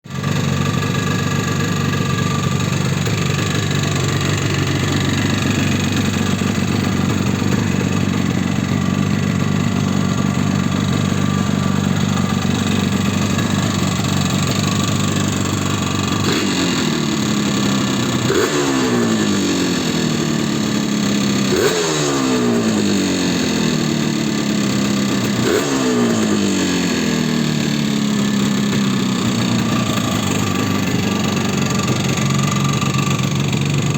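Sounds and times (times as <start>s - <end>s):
motorcycle engine idling with piston slap: 0.2s - 33.9s
engine revving: 16.1s - 23.9s, 25.3s - 28.5s.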